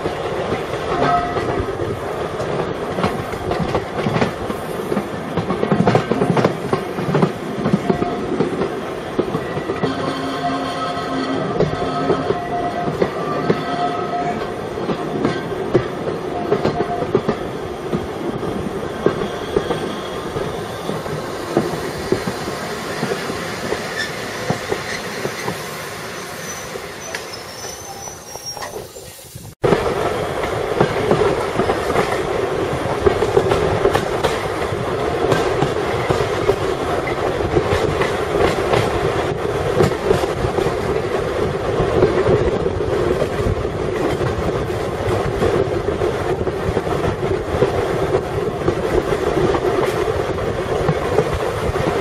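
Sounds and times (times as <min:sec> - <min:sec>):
train wheels clattering on track: 0:00.0 - 0:10.3, 0:11.3 - 0:52.0
faint high wheel squeal: 0:26.2 - 0:29.4.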